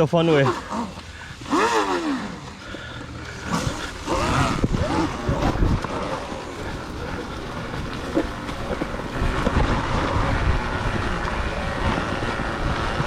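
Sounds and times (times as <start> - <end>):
wind buffeting microphone: 1.1 - 13.0.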